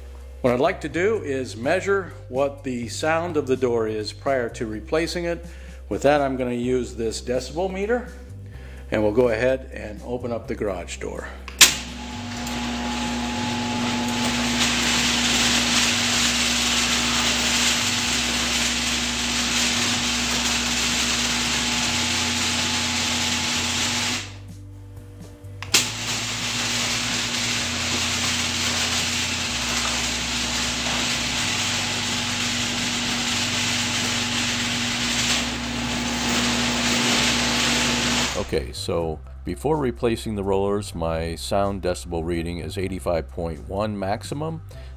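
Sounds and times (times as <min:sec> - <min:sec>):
garage door opener motor hum: 0:11.6 - 0:24.5, 0:25.6 - 0:38.6
garage door rollers rattling: 0:11.8 - 0:24.4, 0:25.7 - 0:38.5.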